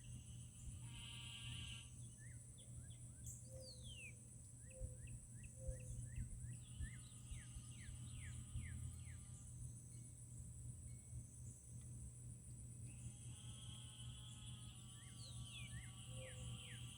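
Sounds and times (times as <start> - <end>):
insect drone: 0.0 - 16.9
bird chirping: 2.0 - 10.1, 14.3 - 16.9.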